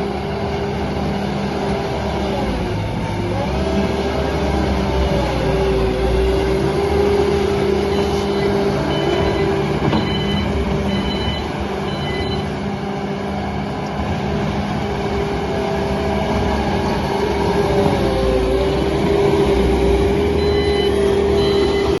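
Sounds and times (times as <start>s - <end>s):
diesel engine working under load: 0.0s - 22.0s
short high beeps: 7.9s - 12.5s, 20.4s - 22.0s.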